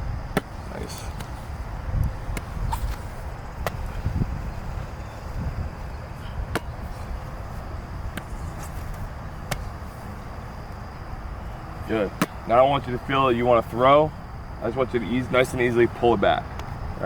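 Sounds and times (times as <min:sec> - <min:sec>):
steady low rumble: 0:00.0 - 0:17.0
football slapping into hands: 0:00.3 - 0:04.2, 0:06.4 - 0:09.9, 0:12.0 - 0:12.6.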